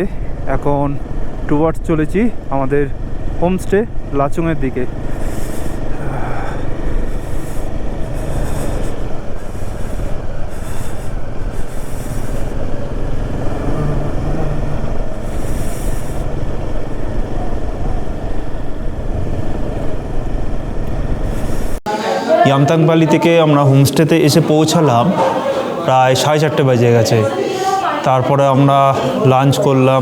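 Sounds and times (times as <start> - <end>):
motorcycle engine rumble: 0.0 - 21.8
road noise: 0.0 - 30.0.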